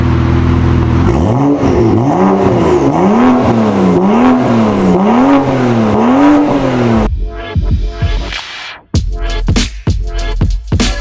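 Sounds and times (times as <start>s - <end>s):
car engine idling and revving: 0.0s - 8.3s.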